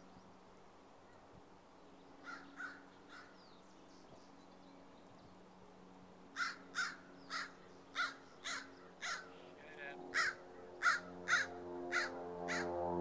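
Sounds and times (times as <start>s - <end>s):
bird calling: 6.4s - 9.5s, 10.1s - 12.7s.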